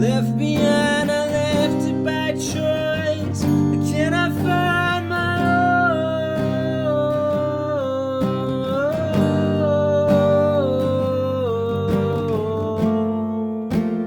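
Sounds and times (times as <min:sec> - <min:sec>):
acoustic guitar: 0:00.0 - 0:14.0.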